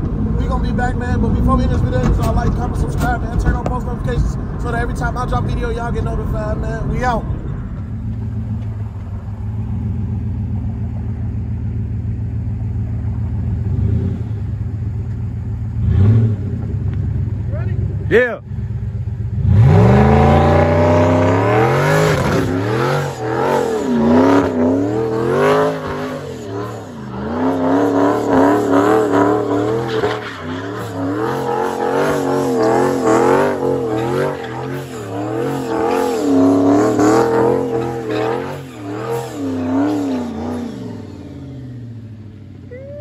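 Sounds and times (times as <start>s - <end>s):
car engine revving hard: 15.8s - 16.7s, 19.3s - 42.2s.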